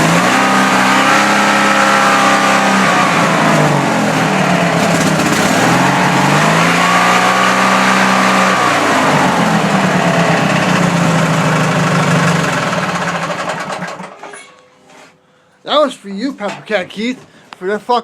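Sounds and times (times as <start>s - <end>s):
garden tractor engine running: 0.7s - 14.3s.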